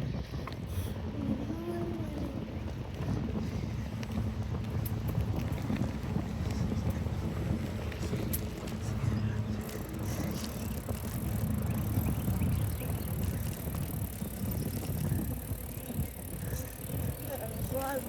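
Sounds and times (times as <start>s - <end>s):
bicycle tyres rumbling on road: 0.0s - 18.0s
wind buffeting microphone: 0.0s - 18.0s.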